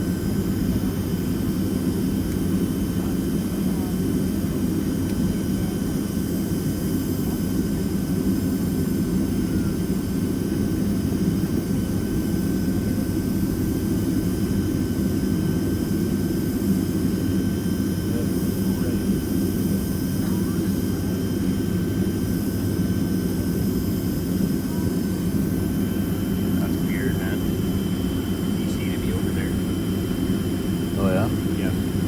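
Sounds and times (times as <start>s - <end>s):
jet engine drone in cabin: 0.0s - 32.0s
thin steady whining tones: 11.4s - 32.0s.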